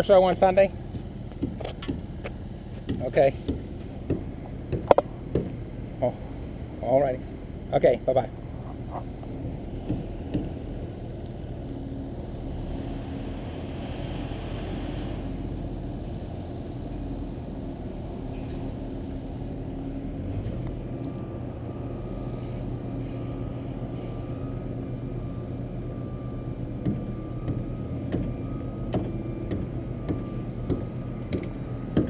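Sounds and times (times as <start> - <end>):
truck engine rumble: 0.0 - 32.0
high whine: 2.2 - 32.0.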